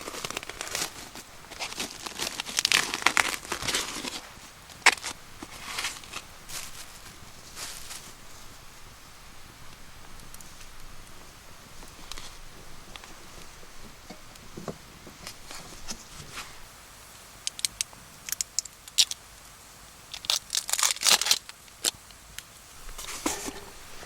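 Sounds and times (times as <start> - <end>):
crinkly packaging being torn: 0.0 - 8.1, 20.1 - 22.0.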